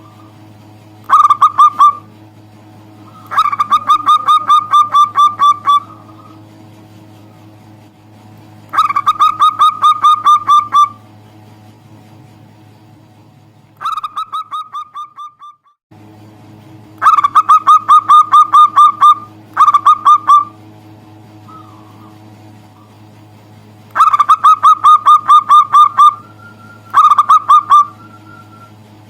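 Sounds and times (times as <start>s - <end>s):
low steady hum: 0.0s - 29.0s
dove cooing: 1.1s - 2.1s, 3.0s - 6.5s, 8.8s - 11.0s, 17.0s - 20.6s, 21.5s - 23.0s, 24.0s - 28.7s.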